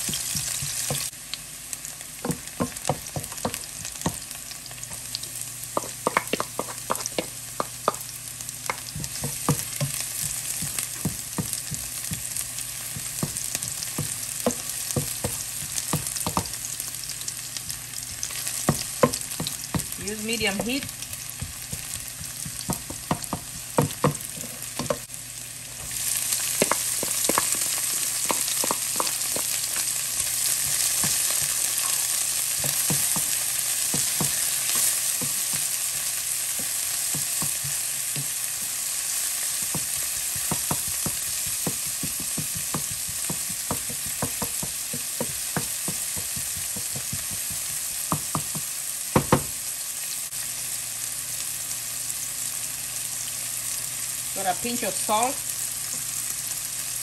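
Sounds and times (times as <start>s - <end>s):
vegetables sizzling in oil: 0.0s - 57.0s
wooden spoon clacking on pan: 5.8s - 8.0s, 26.5s - 35.8s.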